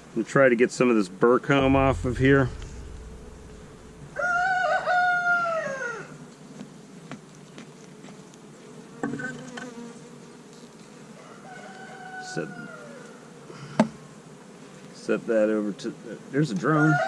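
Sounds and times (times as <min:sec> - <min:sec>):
rooster crowing: 0:04.1 - 0:06.2, 0:11.2 - 0:13.2, 0:16.8 - 0:17.0
honeybees buzzing: 0:06.2 - 0:16.9.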